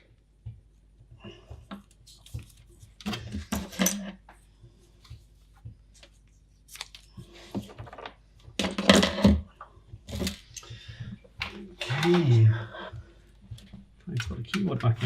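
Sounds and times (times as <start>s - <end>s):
plastic case clattering and knocking: 7.6s - 10.4s.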